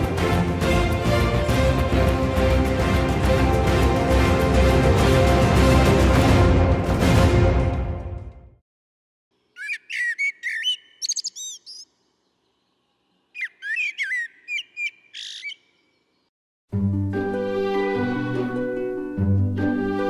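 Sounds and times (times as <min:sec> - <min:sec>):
music: 0:00.0 - 0:08.6, 0:16.7 - 0:20.0
songbird singing: 0:09.4 - 0:16.3.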